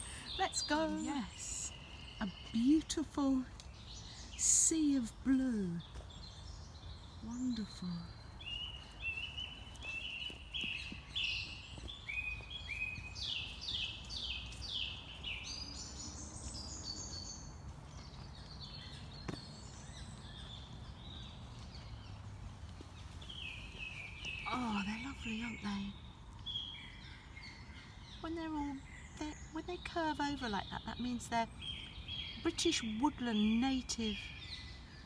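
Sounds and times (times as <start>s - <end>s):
other birds calling: 0.0s - 34.9s.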